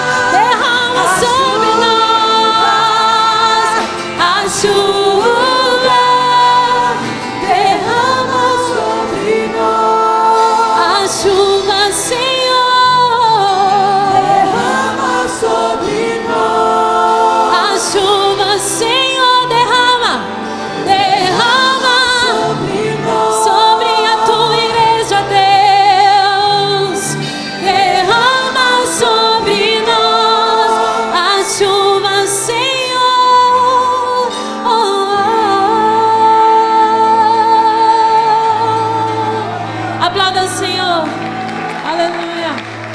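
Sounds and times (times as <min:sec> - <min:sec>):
band playing: 0:00.0 - 0:32.7, 0:37.0 - 0:42.9
gospel singers with vibrato: 0:00.0 - 0:42.9
steady bass: 0:11.0 - 0:18.8.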